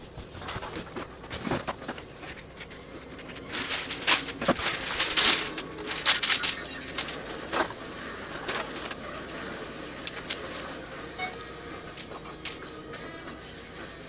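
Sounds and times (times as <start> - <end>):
small hard parts clicking and scraping: 0.0 - 13.5.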